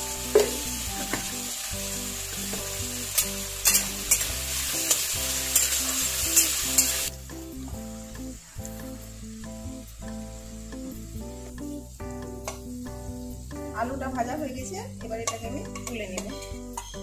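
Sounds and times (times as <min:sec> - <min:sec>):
potatoes sizzling in oil: 0:00.0 - 0:17.0
metal spatula scraping pan: 0:03.2 - 0:07.1.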